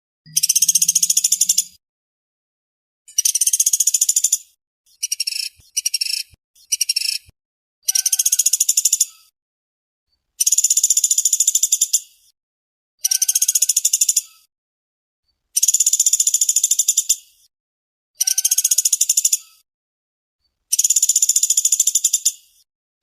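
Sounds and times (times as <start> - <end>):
woodpecker rattling trills: 0.3 - 1.8, 3.1 - 4.4, 7.9 - 9.0, 13.1 - 14.3, 18.2 - 19.4, 20.7 - 22.3.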